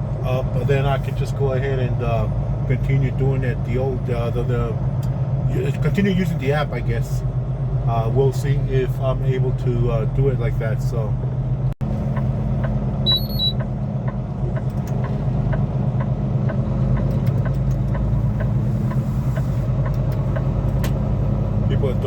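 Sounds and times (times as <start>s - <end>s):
diesel truck engine running: 0.0s - 22.0s
turn signal ticking: 11.8s - 21.0s
short electronic beep: 13.0s - 13.6s.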